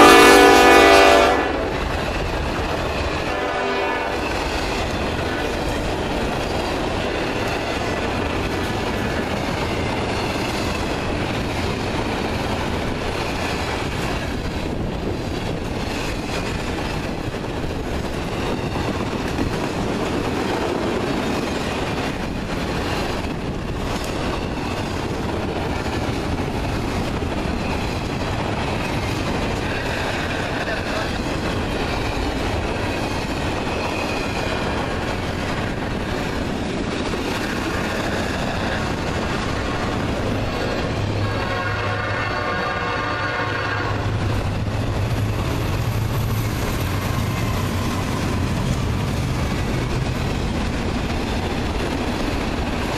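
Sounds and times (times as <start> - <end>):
locomotive horn: 0.0 - 1.9, 3.2 - 4.3, 41.2 - 44.1
freight train wheels on rails: 0.0 - 52.9.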